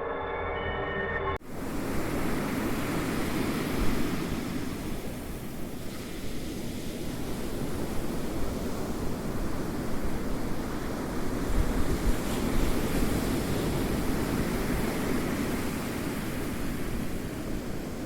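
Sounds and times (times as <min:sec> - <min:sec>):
ringing tone: 0:00.0 - 0:01.4
ocean waves washing in: 0:01.4 - 0:18.0.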